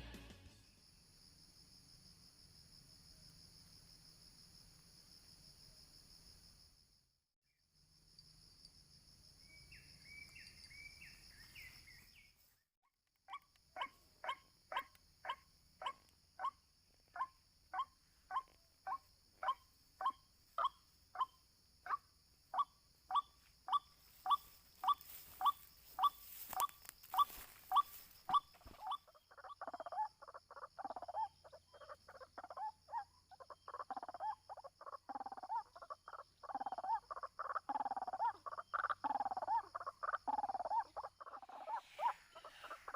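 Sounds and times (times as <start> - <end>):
high insect buzz: 23.4 - 29.0
waterhen calling: 38.8 - 42.9.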